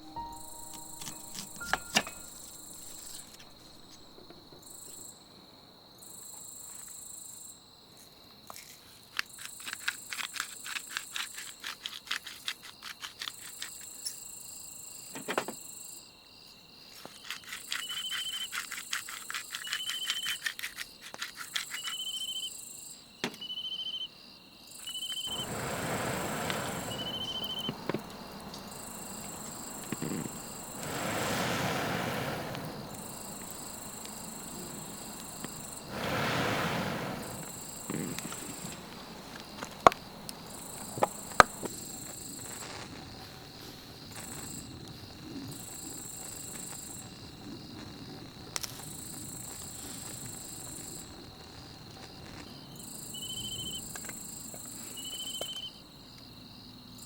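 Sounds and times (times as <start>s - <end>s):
broad hiss: 0.0s - 4.9s, 25.2s - 55.4s
pulsing insect chorus: 0.0s - 7.7s, 9.3s - 57.0s
insects trilling: 0.0s - 57.0s.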